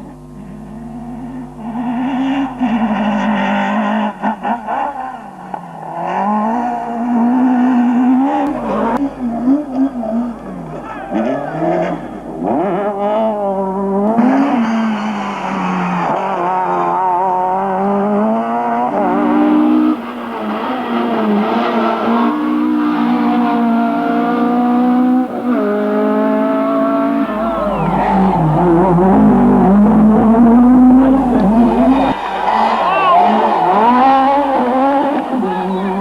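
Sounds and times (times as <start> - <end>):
rally car engine revving: 0.4 - 36.0.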